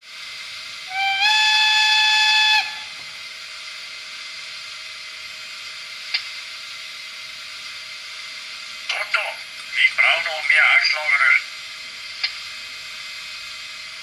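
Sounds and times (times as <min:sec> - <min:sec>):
steam hiss: 0:00.0 - 0:14.0
model steam whistle blast: 0:00.8 - 0:03.4.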